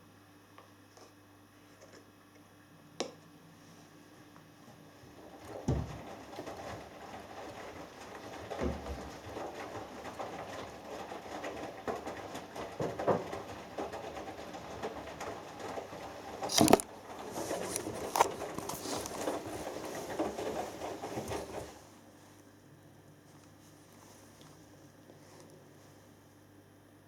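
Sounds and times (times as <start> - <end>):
washing machine tumbling: 4.0 - 27.0
clothes pattering against drum: 5.1 - 21.9.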